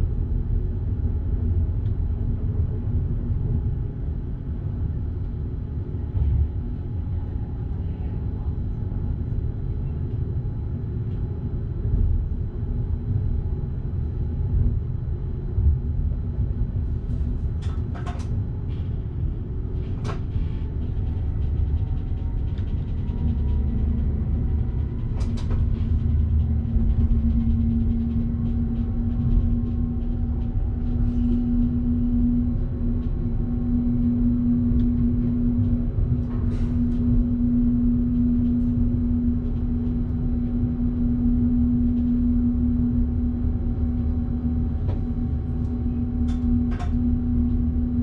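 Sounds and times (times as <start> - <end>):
train rumbling: 11.9 - 48.0.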